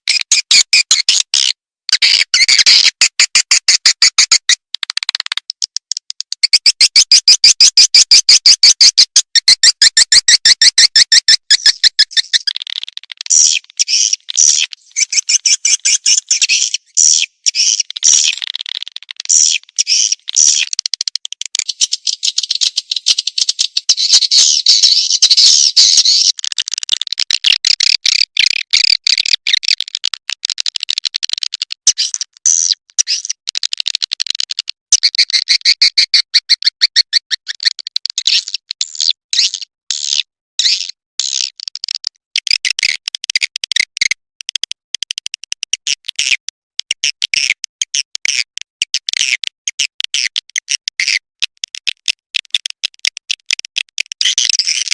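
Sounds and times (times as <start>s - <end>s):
high chittering bird calls: 9.9s - 20.8s, 21.6s - 26.4s.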